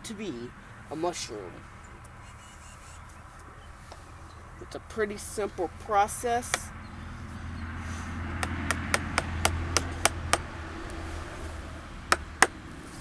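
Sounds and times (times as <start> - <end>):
mallet knocking chisel into log: 8.4 - 10.5, 12.1 - 12.6.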